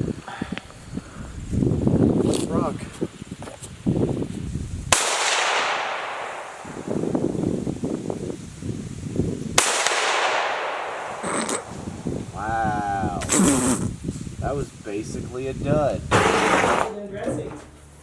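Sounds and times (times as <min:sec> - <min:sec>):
gunshots with echo: 0:04.9 - 0:07.1, 0:09.6 - 0:12.1.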